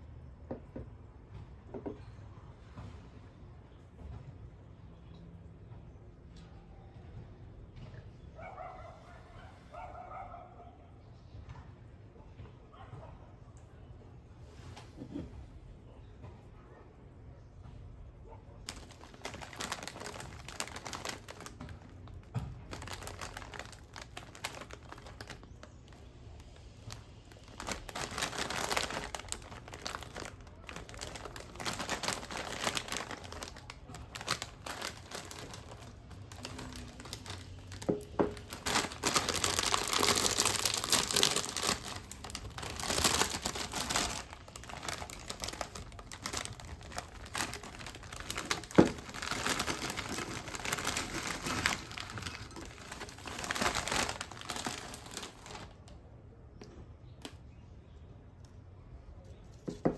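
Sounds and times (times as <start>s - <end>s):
plastic snack bag crinkling: 18.6s - 55.8s.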